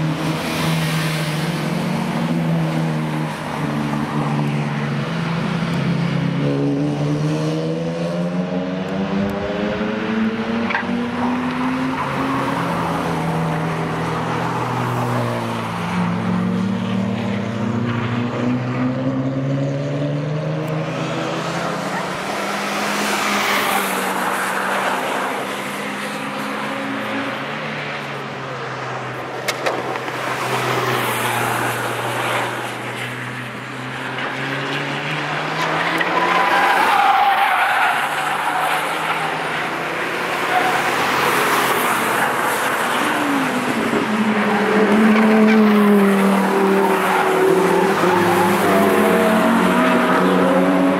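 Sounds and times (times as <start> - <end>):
race car engines revving: 0.0 - 50.9.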